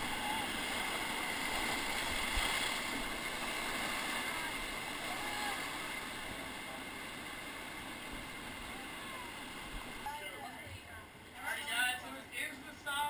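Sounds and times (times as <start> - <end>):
river water rushing: 0.0 - 10.4.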